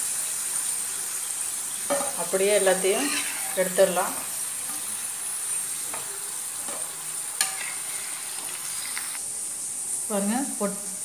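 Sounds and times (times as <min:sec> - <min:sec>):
potato slices sizzling in oil: 0:00.0 - 0:11.0
metal spatula scraping pan: 0:01.9 - 0:04.3, 0:06.7 - 0:09.2.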